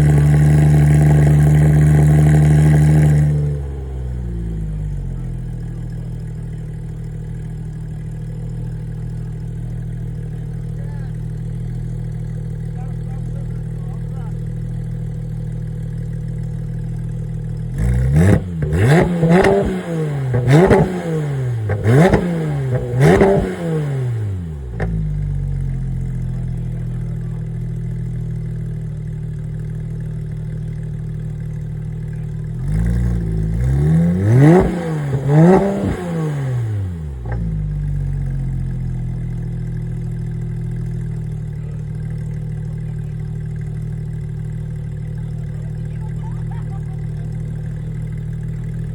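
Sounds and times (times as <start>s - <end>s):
car engine idling and revving: 0.0s - 48.9s.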